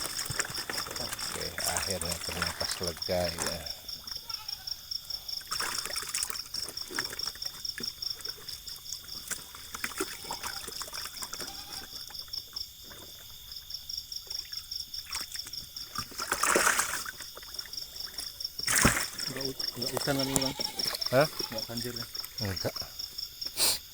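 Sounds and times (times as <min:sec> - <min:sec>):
fish splashing in pond: 0:00.0 - 0:04.2, 0:05.0 - 0:13.6, 0:14.2 - 0:22.5
water trickling and splashing: 0:00.0 - 0:23.4
insects chirping: 0:00.0 - 0:23.9.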